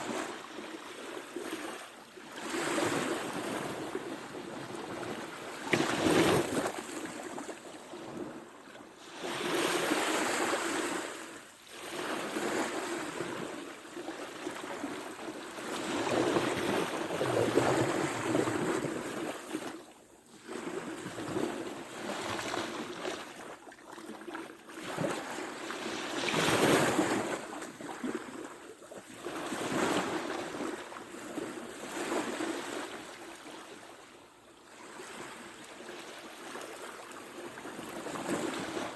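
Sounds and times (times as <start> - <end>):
waves breaking: 0.0 - 19.8, 20.4 - 31.1
wind on microphone: 15.8 - 19.6.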